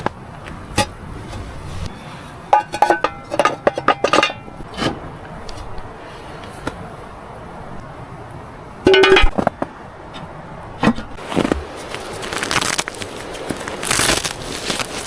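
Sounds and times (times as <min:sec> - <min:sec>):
cookware and utensils clinking: 0:02.5 - 0:04.9, 0:08.9 - 0:09.4.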